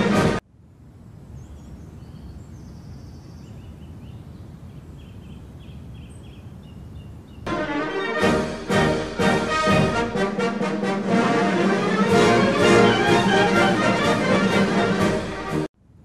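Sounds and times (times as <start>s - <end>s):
brass band music: 0.0s - 0.4s, 7.5s - 15.7s
birds chirping and twittering: 1.2s - 7.5s.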